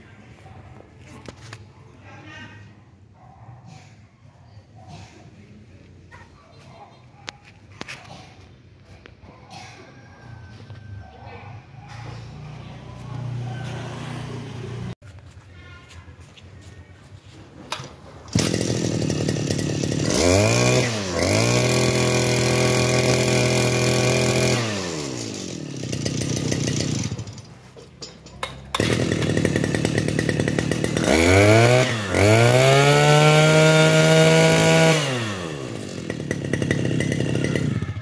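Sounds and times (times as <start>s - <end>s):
small two-stroke engine revving: 11.6s - 15.0s, 17.8s - 38.0s.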